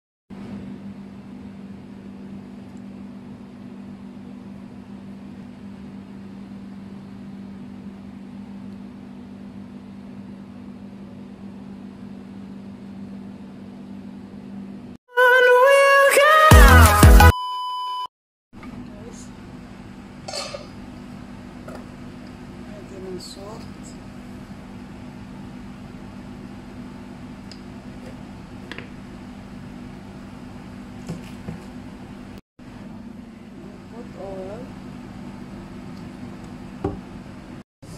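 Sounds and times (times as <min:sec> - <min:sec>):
stove hum and hiss: 0:18.6 - 0:37.9.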